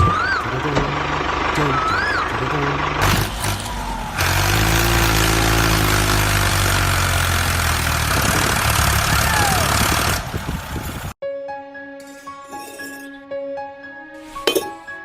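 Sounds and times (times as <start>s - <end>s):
engine idling: 0.0s - 11.2s.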